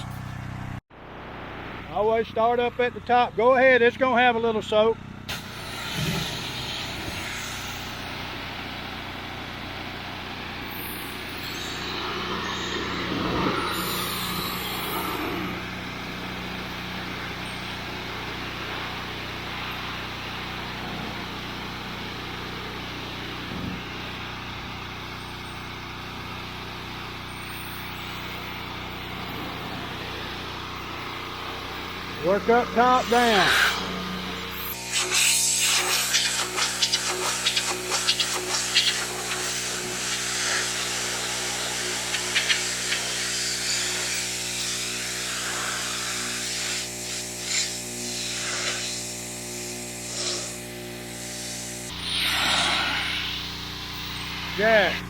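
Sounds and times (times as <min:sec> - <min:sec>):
pressure washer motor drone: 0:00.0 - 0:55.0
water jet hissing: 0:05.3 - 0:08.6, 0:31.0 - 0:55.0.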